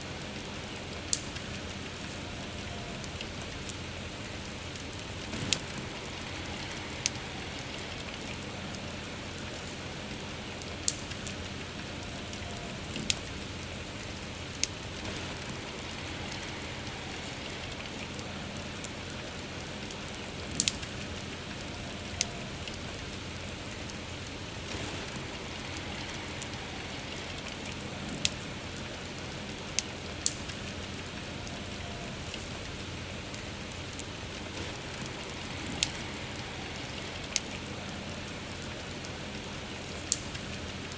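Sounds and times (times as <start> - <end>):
soft rain hiss: 0.0 - 40.9
wood fire crackling: 0.0 - 40.9.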